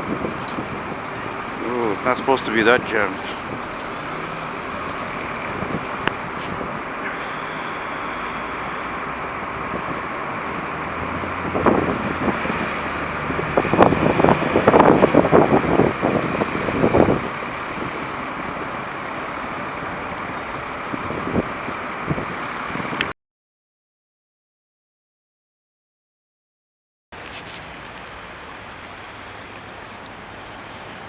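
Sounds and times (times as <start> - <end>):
street traffic: 0.0 - 23.1, 27.1 - 31.0
wind buffeting microphone: 0.0 - 23.1.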